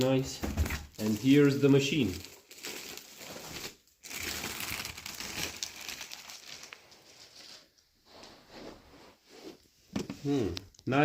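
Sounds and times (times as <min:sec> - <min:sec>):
packaging crinkling and rustling: 0:00.6 - 0:07.9.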